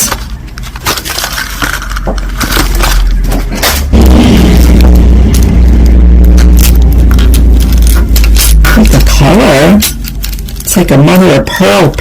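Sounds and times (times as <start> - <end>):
loud low rumble: 3.0 - 11.1.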